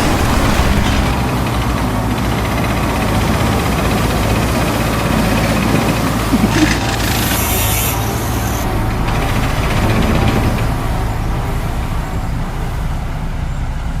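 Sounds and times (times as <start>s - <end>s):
large engine rumbling: 0.0s - 14.0s.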